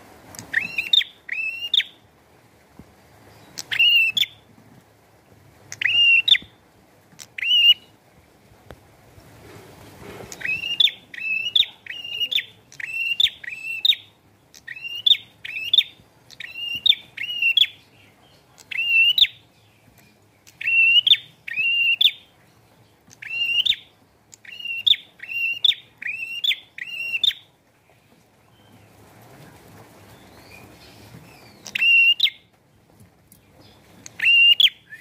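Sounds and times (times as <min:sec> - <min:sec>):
bird singing sharp chirps: 0:10.3 - 0:17.8.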